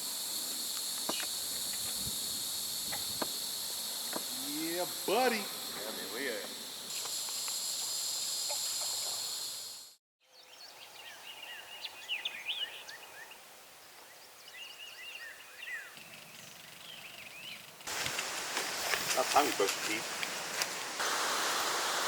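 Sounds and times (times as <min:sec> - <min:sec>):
high insect chorus: 0:00.0 - 0:22.0
birds chirping: 0:14.0 - 0:17.9.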